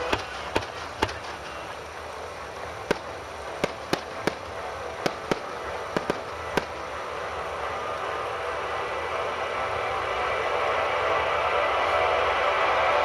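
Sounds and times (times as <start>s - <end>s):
fireworks bursting: 0.0s - 9.3s
background hiss: 0.0s - 13.0s.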